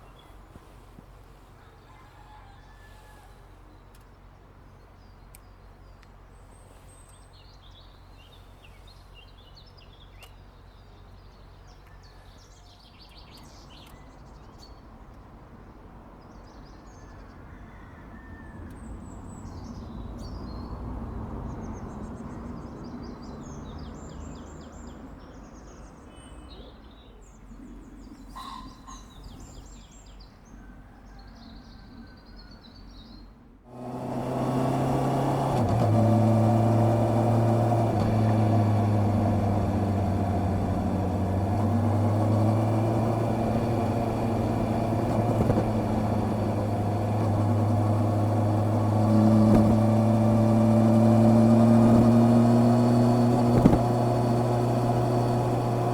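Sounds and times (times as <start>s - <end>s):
small birds chirping: 0.0s - 55.9s
broad rumble: 33.8s - 55.9s.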